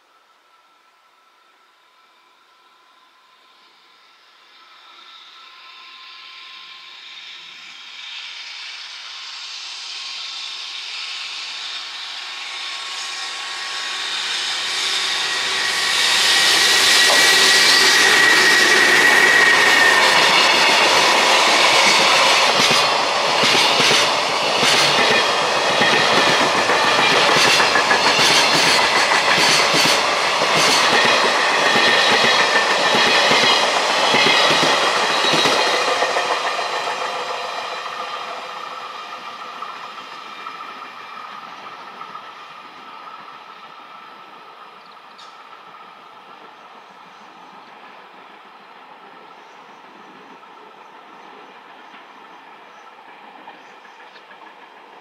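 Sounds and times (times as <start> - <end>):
electric locomotive high whine: 0.0 - 55.0
train wheels clattering over rail joints: 15.4 - 42.2.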